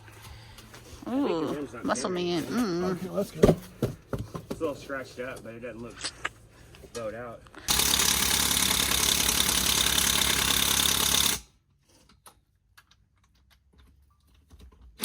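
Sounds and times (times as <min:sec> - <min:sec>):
impact wrench hammering: 0:07.7 - 0:11.4.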